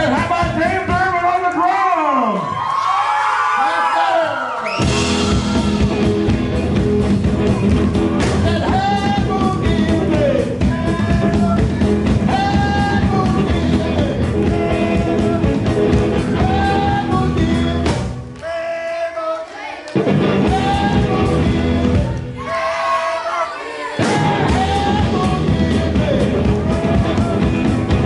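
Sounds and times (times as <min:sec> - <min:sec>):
bass guitar: 0:00.0 - 0:01.2, 0:04.8 - 0:18.4, 0:20.0 - 0:22.6, 0:24.0 - 0:28.0
drums: 0:00.0 - 0:01.5, 0:04.6 - 0:18.4, 0:19.9 - 0:28.0
electric guitar: 0:04.8 - 0:18.4, 0:20.0 - 0:22.4, 0:24.0 - 0:28.0
person singing: 0:08.3 - 0:28.0.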